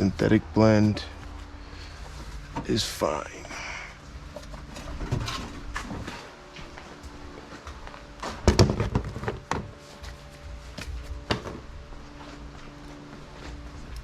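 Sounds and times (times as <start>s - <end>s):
faint steady hum: 0.0s - 14.0s
knocks and clunks of handling: 8.4s - 9.8s.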